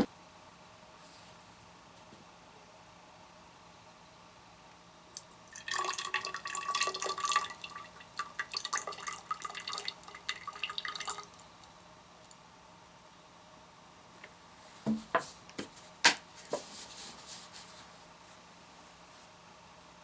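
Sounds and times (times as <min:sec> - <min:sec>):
water dripping into a vessel: 0:05.2 - 0:11.4.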